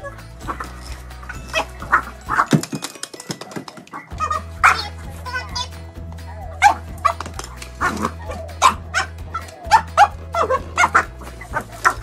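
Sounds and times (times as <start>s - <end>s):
background music: 0.0s - 12.0s
dog barking: 0.4s - 2.5s, 3.9s - 5.1s, 6.5s - 12.0s.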